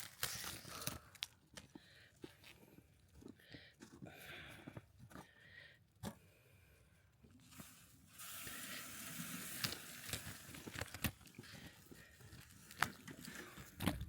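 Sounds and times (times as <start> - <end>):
material rustling and crinkling: 0.0 - 1.3.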